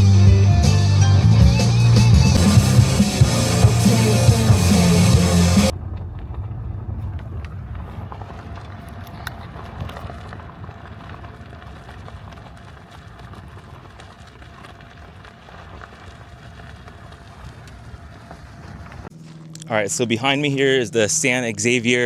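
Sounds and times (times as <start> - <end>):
steady low rumble: 1.9 - 13.0.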